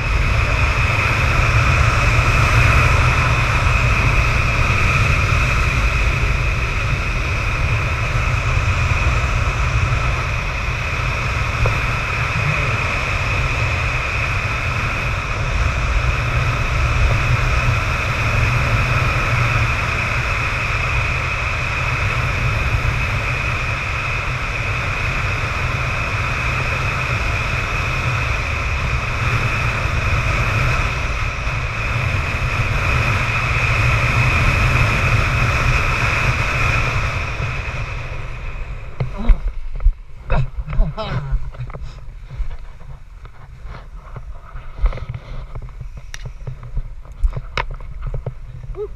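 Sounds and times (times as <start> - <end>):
strong wind buffeting microphone: 0.0 - 48.9.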